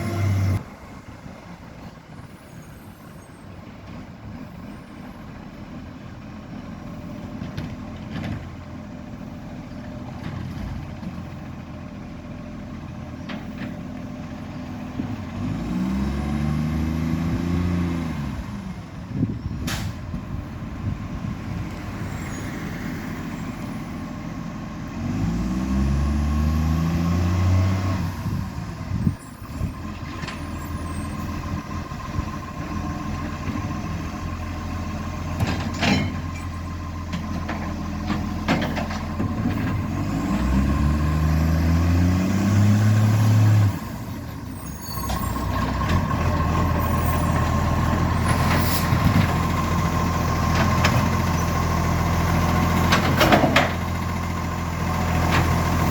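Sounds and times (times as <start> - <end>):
engine idling and revving: 0.0 - 55.9.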